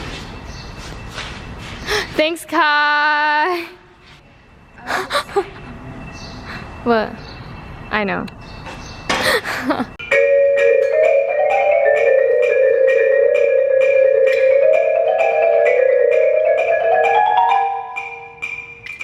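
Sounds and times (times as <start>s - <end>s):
marimba playing fast runs: 10.0s - 19.0s.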